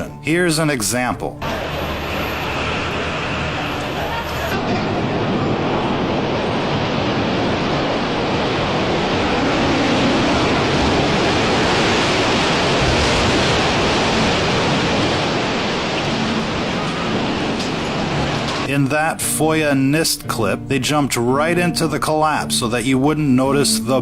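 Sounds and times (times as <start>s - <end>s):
loud rushing noise: 1.4s - 19.0s.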